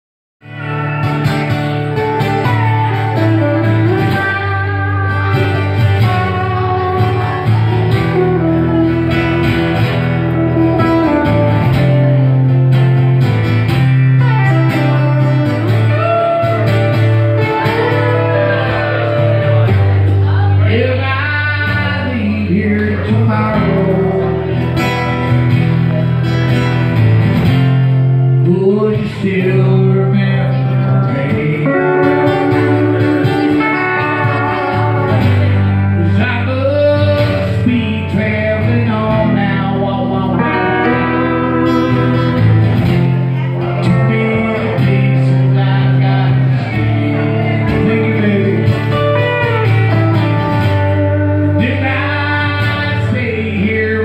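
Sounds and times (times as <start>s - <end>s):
held bass notes: 0.4s - 54.0s
electric guitar sliding lines: 0.5s - 20.5s, 31.4s - 36.1s, 40.1s - 51.8s.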